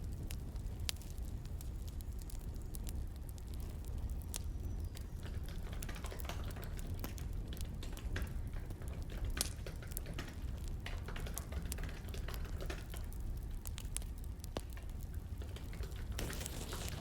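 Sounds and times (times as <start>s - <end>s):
firewood crackling and popping: 0.0s - 17.0s.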